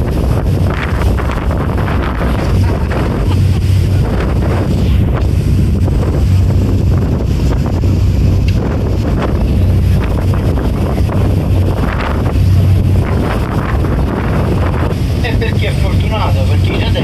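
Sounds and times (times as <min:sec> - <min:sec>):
boat engine drone: 0:00.0 - 0:17.0
rushing water: 0:00.0 - 0:17.0
wind buffeting microphone: 0:00.0 - 0:17.0.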